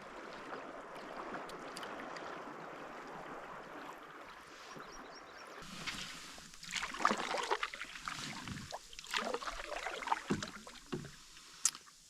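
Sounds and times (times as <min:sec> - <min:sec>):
paddle dipping into water: 0:00.0 - 0:11.8
water splashes and drips: 0:00.0 - 0:12.0.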